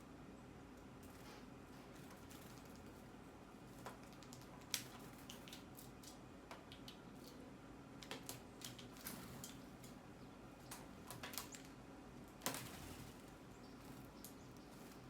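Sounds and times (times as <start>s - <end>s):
birds pecking taps and clicks: 3.8s - 10.0s, 10.6s - 15.0s.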